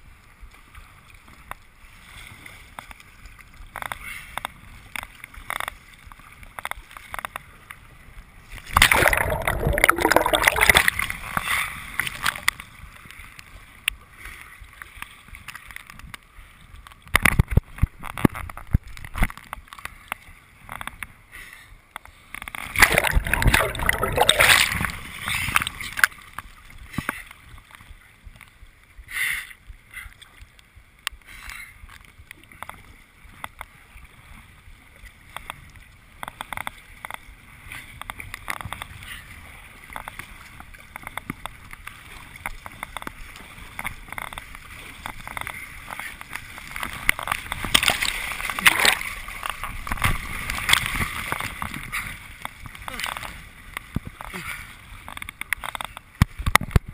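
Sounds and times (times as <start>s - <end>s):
water splashing and dripping: 8.6s - 11.4s, 22.4s - 26.5s, 40.9s - 51.8s.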